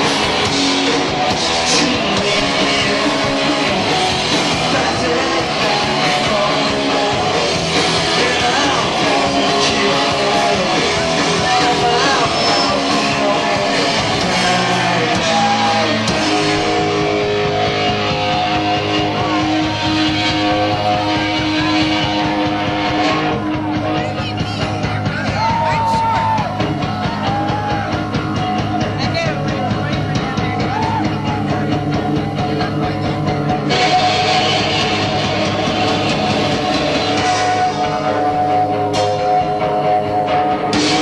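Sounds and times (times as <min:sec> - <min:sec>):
live rock band playing: 0:00.0 - 0:41.0.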